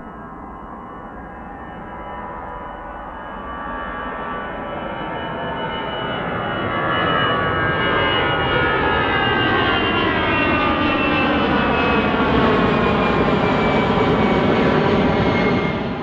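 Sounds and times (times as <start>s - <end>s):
jet engines passing: 4.4s - 16.0s.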